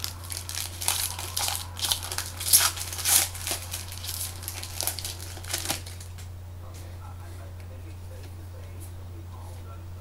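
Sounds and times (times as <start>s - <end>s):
card wrappers crinkling and tearing: 0.0s - 6.3s
low electrical hum: 0.0s - 10.0s.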